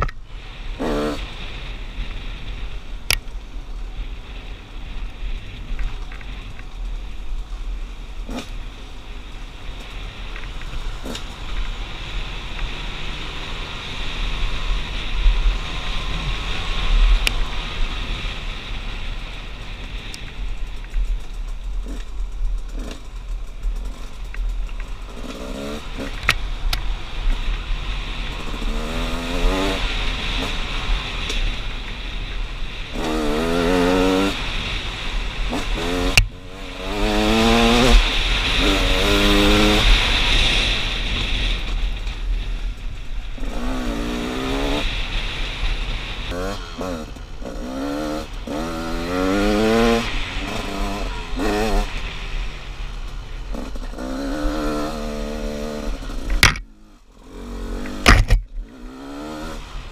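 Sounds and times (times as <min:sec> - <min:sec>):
wind rumble on microphone: 0:00.0 - 0:59.9
two-stroke engine revving: 0:00.6 - 0:01.7, 0:21.5 - 0:31.8, 0:32.6 - 0:41.9, 0:43.4 - 0:52.6, 0:53.3 - 0:59.9.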